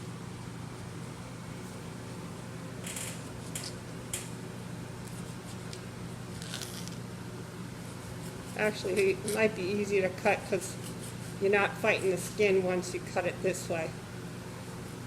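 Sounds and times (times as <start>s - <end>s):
low room hum: 0.0s - 15.0s
knife cutting tomatoes: 10.5s - 11.4s.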